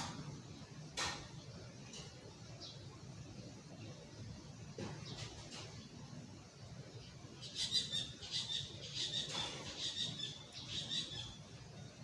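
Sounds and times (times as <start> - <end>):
bird chirping: 6.9 - 12.0.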